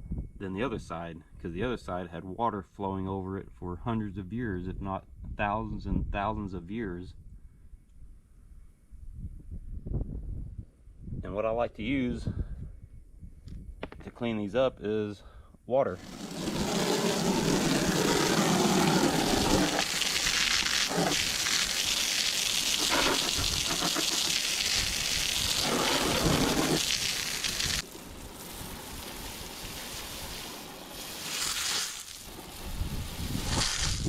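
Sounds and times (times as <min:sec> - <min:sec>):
water pouring and splashing: 0:16.0 - 0:34.0.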